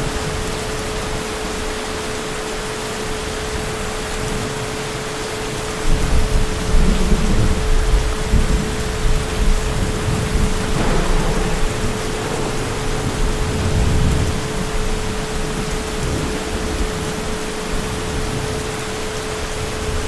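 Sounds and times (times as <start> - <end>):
heavy rain falling: 0.0 - 20.0
distant thunder rumbling: 5.9 - 18.9.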